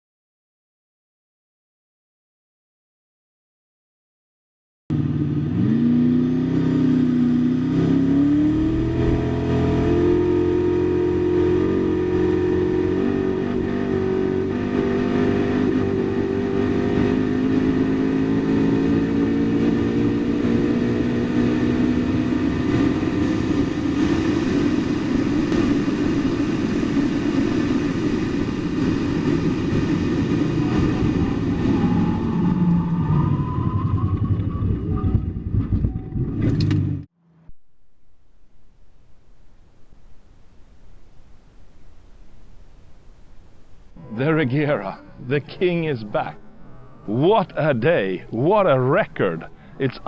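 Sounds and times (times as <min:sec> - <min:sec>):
car engine accelerating: 0:04.9 - 0:37.6, 0:43.9 - 0:50.0
wind and tyre noise: 0:04.9 - 0:50.0.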